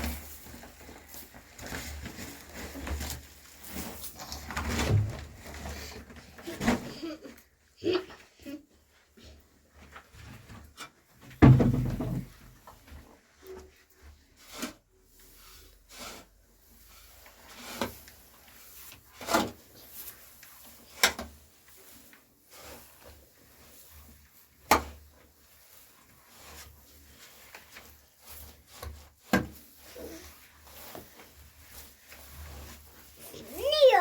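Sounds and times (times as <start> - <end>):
scraping soil and stones: 0.0 - 6.0.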